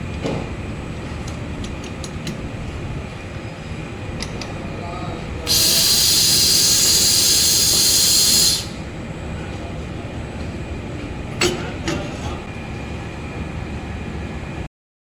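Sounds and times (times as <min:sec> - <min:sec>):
machine running noise: 0:05.3 - 0:14.7
loud welding hiss: 0:05.5 - 0:08.8.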